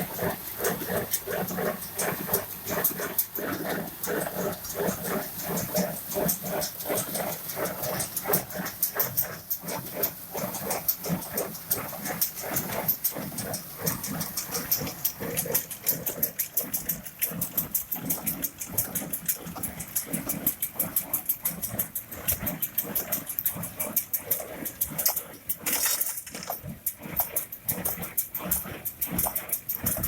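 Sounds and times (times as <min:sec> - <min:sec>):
tractor low rumble: 0:00.0 - 0:30.0
baler clicking: 0:12.2 - 0:30.0.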